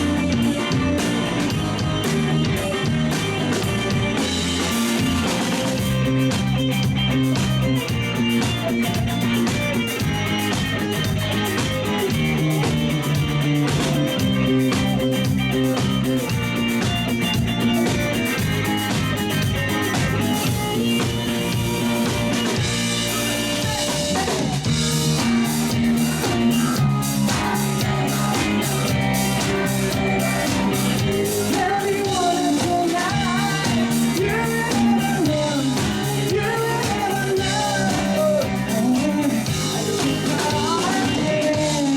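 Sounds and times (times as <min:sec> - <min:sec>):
bass guitar: 0:00.0 - 0:41.9
drum kit: 0:00.0 - 0:41.9
electric guitar: 0:00.0 - 0:41.9
person singing: 0:23.1 - 0:41.9.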